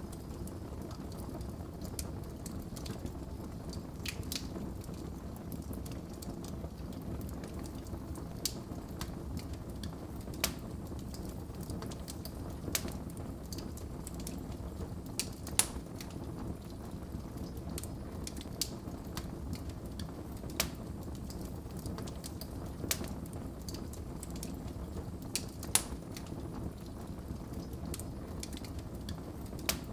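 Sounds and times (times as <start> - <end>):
wood fire crackling and popping: 0.0 - 29.9.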